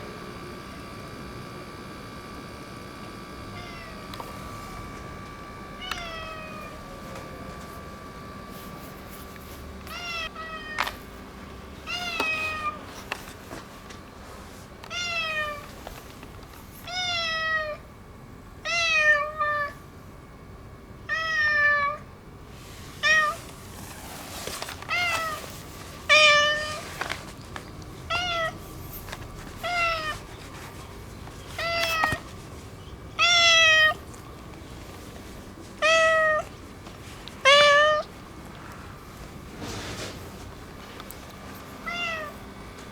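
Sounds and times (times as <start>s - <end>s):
cat meowing: 3.6s - 4.1s, 5.8s - 6.8s, 9.9s - 10.8s, 16.9s - 17.8s, 21.1s - 22.0s, 24.8s - 25.4s, 26.1s - 26.8s, 28.1s - 28.6s, 29.6s - 30.3s, 31.6s - 32.3s, 33.2s - 34.0s, 35.8s - 36.6s, 37.4s - 38.1s, 41.8s - 42.4s.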